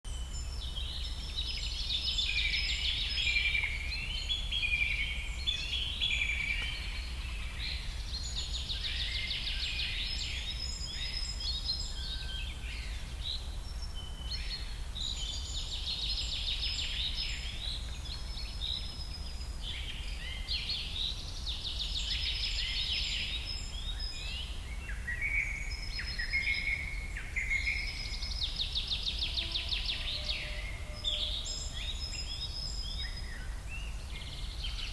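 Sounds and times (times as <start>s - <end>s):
songbird trilling and warbling: 0.2s - 34.9s.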